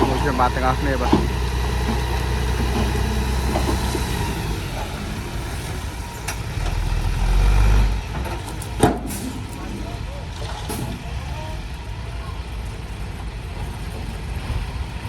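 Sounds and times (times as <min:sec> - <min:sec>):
dump truck engine rumbling: 0:00.0 - 0:15.0.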